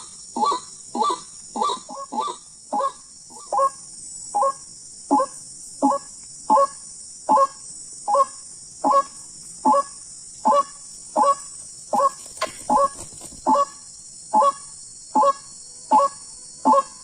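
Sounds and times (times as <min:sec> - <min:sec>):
waterhen croaking call: 0:00.0 - 0:03.8, 0:04.4 - 0:09.9, 0:15.2 - 0:17.0.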